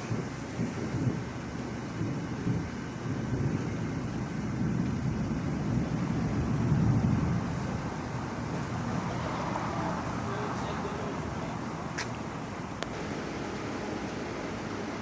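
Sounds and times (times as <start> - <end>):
distant thunder rumbling: 1.9 - 9.4.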